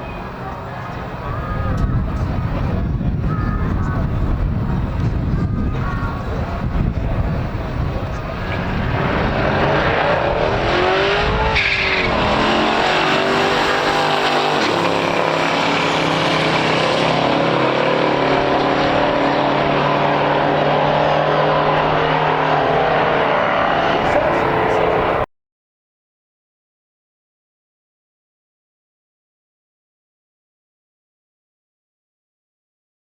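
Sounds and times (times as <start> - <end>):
racing car engine accelerating: 6.4 - 25.3.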